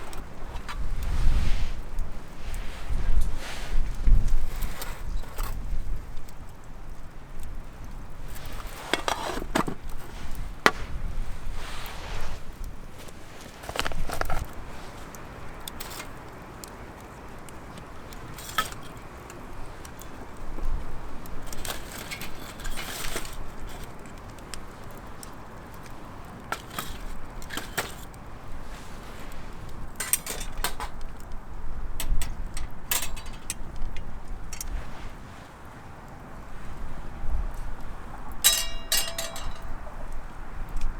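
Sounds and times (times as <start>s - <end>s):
metal camp gear clinking: 0.0s - 1.2s, 8.2s - 16.7s, 17.7s - 20.1s, 21.2s - 31.3s, 32.0s - 34.9s, 38.4s - 40.0s.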